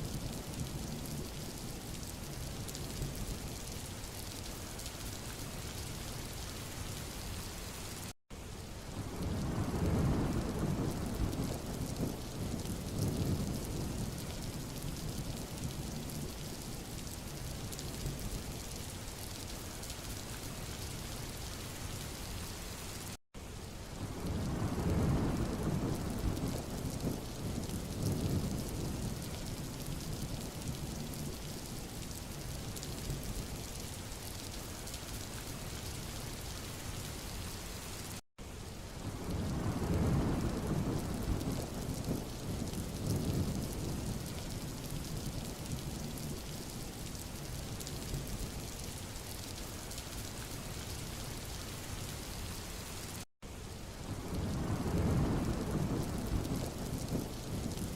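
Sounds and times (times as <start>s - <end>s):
rain falling on road: 0.0s - 57.9s.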